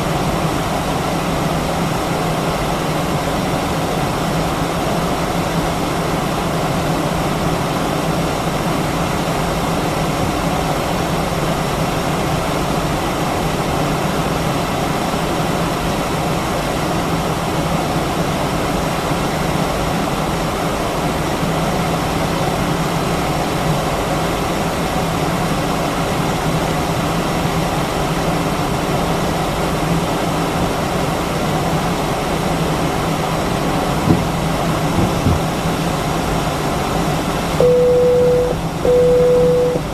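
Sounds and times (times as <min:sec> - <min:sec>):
low engine drone: 0:33.2 - 0:39.9
brief knock: 0:34.1 - 0:34.3, 0:35.0 - 0:35.5.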